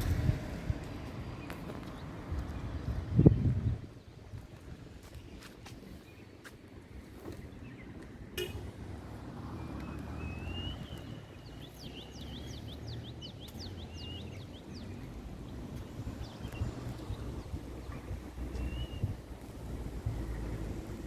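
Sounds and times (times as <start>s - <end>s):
wind rumble on microphone: 0.0s - 21.0s
bird singing: 9.5s - 19.2s.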